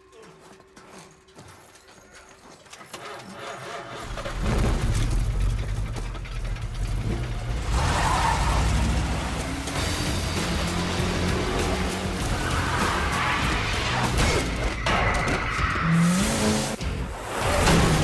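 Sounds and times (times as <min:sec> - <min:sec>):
car engine starting and running: 0:04.0 - 0:18.0.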